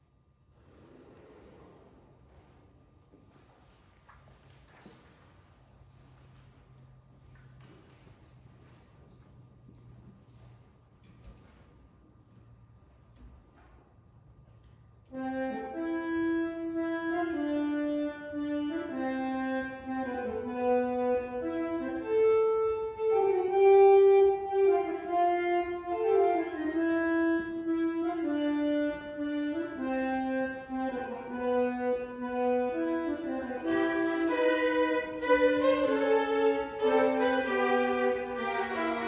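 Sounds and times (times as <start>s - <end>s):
slow orchestral music: 30.8s - 39.0s.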